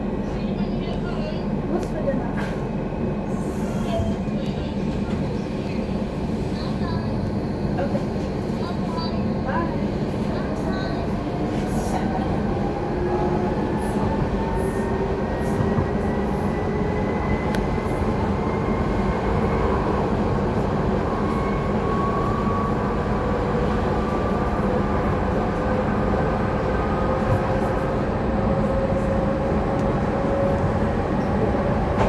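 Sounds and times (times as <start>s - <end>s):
train wheels rumbling on track: 0.0s - 32.0s.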